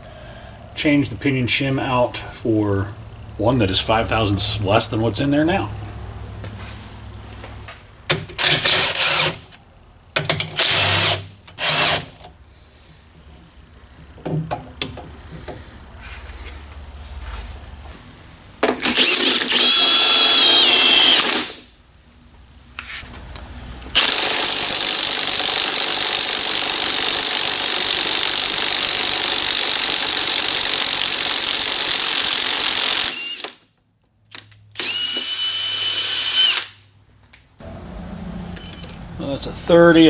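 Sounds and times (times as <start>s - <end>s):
power tool whining: 18.8s - 21.6s, 23.9s - 33.6s, 34.8s - 36.8s.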